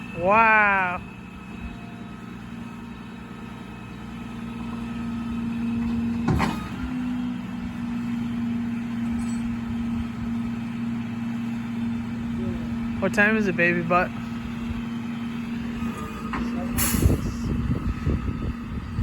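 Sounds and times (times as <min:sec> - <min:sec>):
truck engine and hydraulic winch: 0:00.0 - 0:19.0
metal clank: 0:06.1 - 0:06.9, 0:09.1 - 0:09.6.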